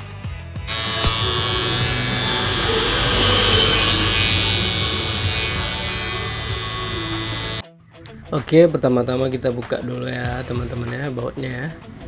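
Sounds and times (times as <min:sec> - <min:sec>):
electric hair clipper buzzing: 0:00.7 - 0:07.6.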